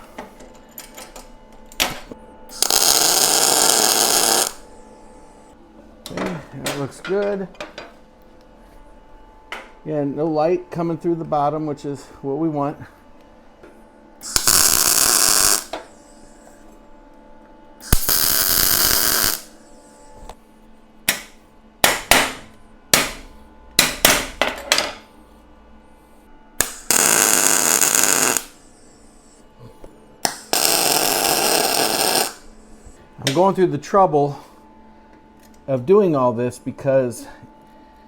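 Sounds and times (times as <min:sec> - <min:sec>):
arc welder crackling hiss: 0:02.5 - 0:04.8, 0:14.2 - 0:16.7, 0:17.8 - 0:20.4, 0:26.6 - 0:29.4, 0:30.2 - 0:33.0.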